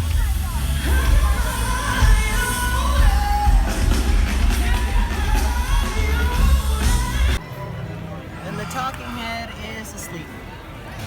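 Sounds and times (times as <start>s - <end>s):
loud music with pounding bass: 0.0s - 7.4s
person singing: 0.0s - 7.4s.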